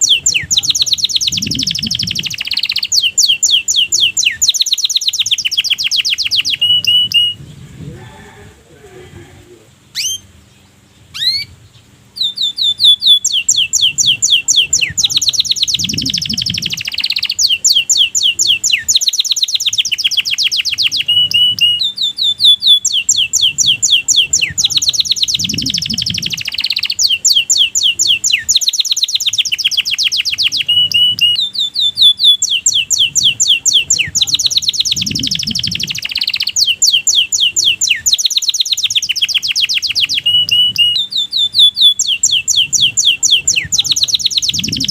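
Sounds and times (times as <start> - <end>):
canary singing trills: 0.0 - 8.4, 9.4 - 44.9
short bird chirps: 11.1 - 11.5.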